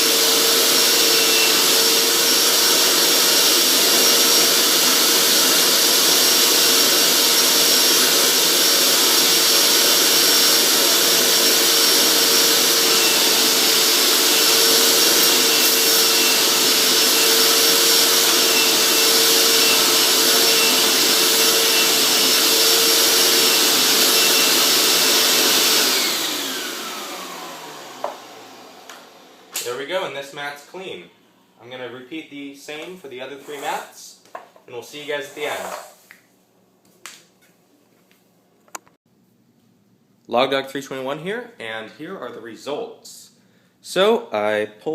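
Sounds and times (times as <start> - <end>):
carpet cleaner motor whining: 0.0 - 29.6.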